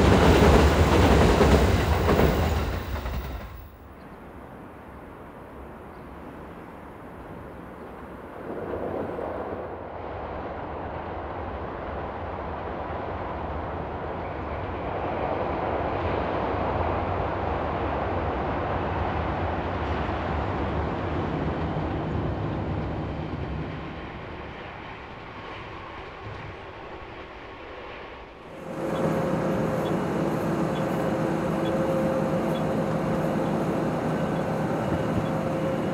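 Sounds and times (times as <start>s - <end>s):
electric train running past: 0.0s - 35.9s.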